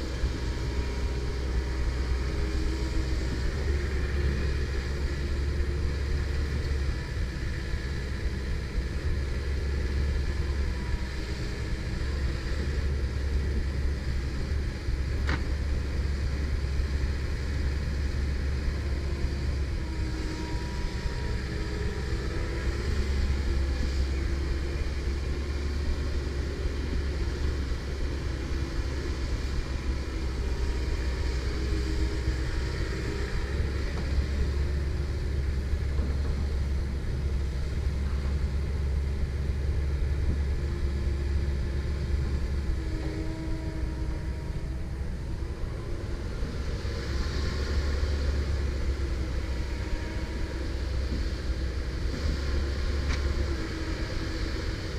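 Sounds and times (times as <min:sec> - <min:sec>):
excavator diesel drone: 0:00.0 - 0:54.9
excavator whine: 0:00.0 - 0:54.9.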